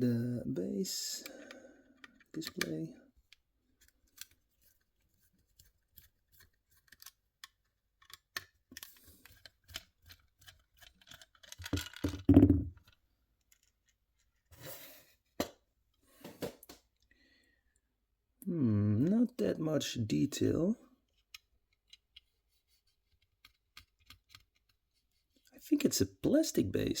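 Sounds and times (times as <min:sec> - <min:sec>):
small clicks and scrapes: 0:01.3 - 0:14.6, 0:21.0 - 0:25.5.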